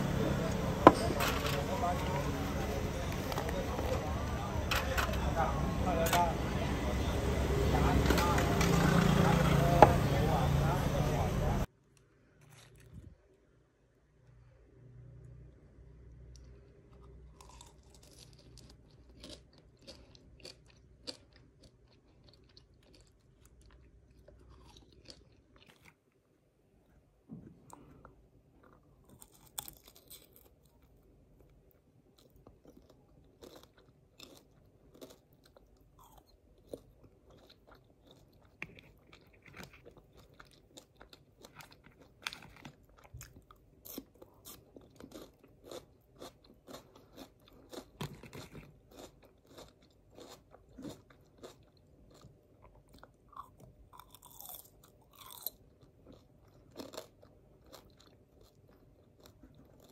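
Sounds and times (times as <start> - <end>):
crisp crunching while chewing: 12.4 - 13.1, 16.3 - 26.3, 28.6 - 59.9.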